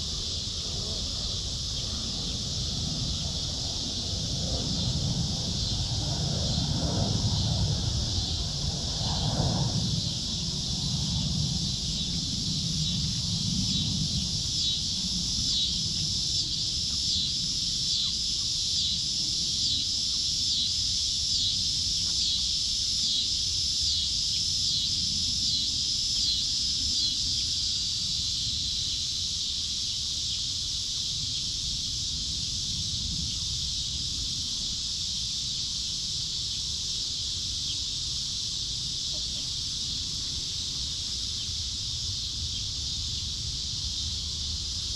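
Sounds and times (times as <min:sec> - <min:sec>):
insects chorus: 0:00.0 - 0:44.9.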